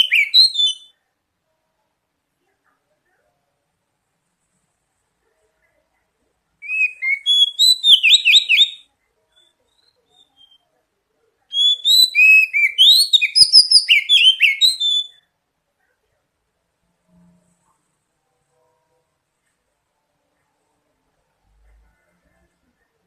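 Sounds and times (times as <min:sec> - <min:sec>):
songbird singing high notes: 0:00.0 - 0:00.9, 0:06.6 - 0:10.6, 0:11.5 - 0:15.2.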